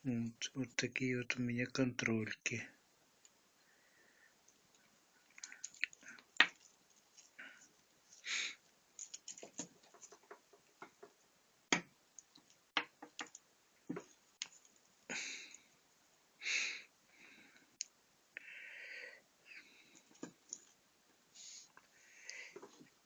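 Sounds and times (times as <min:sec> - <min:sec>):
short hissy noises: 0:21.3 - 0:21.7.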